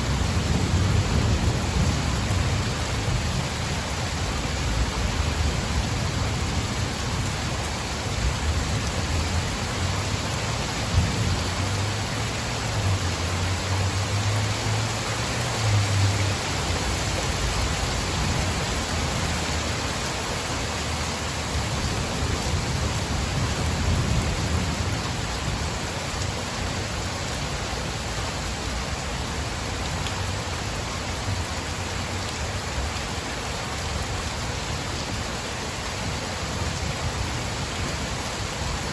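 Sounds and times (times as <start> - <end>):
low rumble of thunder: 0.0 - 13.0, 21.6 - 26.6
heavy rain: 0.0 - 38.9.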